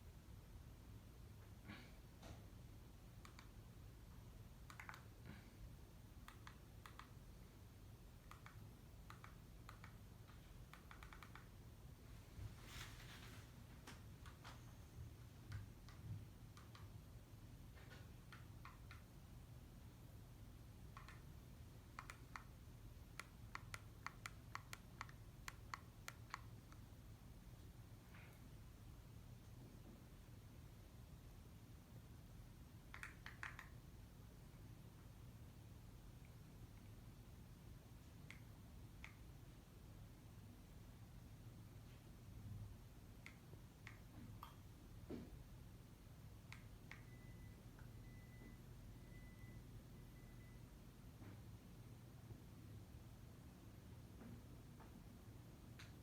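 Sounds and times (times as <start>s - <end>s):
ceiling fan hum: 0.0s - 56.0s
light irregular clicks: 3.1s - 3.7s, 4.5s - 5.6s, 6.2s - 7.4s, 8.1s - 11.6s, 13.8s - 19.2s, 20.8s - 28.5s, 32.7s - 34.7s, 37.8s - 39.7s, 43.0s - 45.4s, 46.3s - 49.3s, 55.7s - 56.0s.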